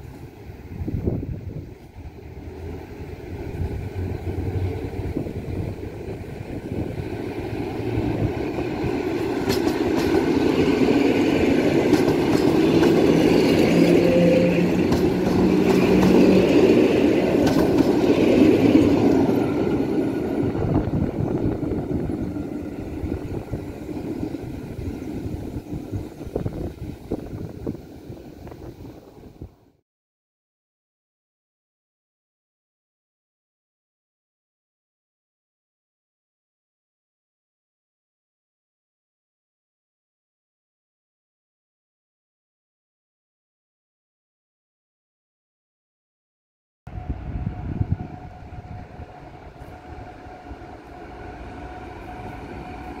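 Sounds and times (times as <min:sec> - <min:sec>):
train running on rails: 0:00.0 - 0:29.8, 0:46.9 - 0:53.0.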